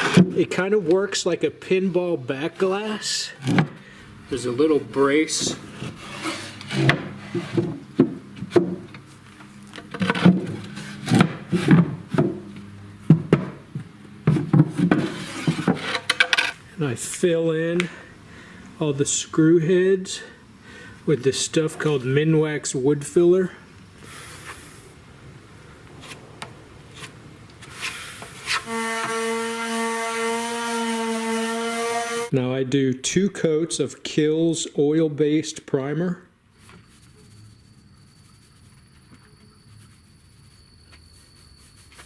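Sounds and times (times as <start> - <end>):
putty knife scraping: 5.4 - 7.8, 14.8 - 16.6, 27.0 - 29.2
wood knocking and rubbing: 5.4 - 9.0, 13.1 - 16.4
power tool motor whine: 27.7 - 32.3.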